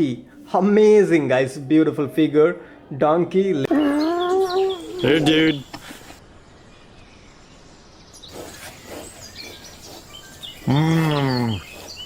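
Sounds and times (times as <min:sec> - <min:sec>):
small birds chirping: 0:03.7 - 0:12.0.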